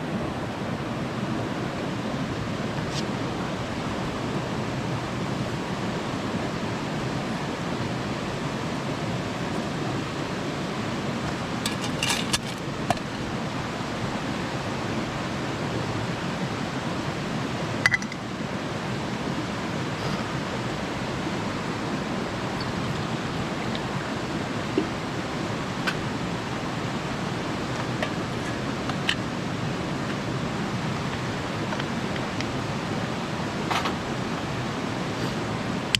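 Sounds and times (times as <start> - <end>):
mountain stream rushing: 0.0 - 35.9
light clinks and knocks: 11.6 - 13.2.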